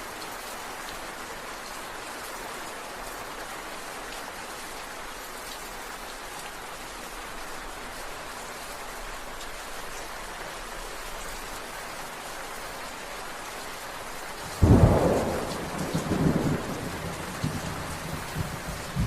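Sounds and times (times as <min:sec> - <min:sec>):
steady rain falling: 0:00.0 - 0:19.0
low thunder rumbles: 0:14.5 - 0:19.0
thunderclap: 0:14.6 - 0:19.0.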